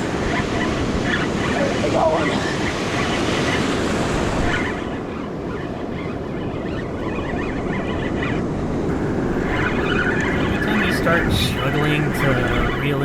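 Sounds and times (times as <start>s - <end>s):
ocean surf breaking: 0.0s - 5.6s, 8.7s - 13.0s
wind buffeting microphone: 0.0s - 13.0s.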